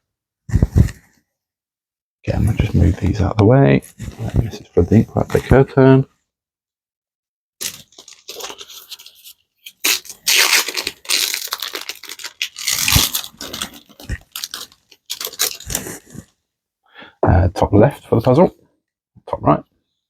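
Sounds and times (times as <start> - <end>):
foil wrapper crinkling and tearing: 7.6 - 16.3.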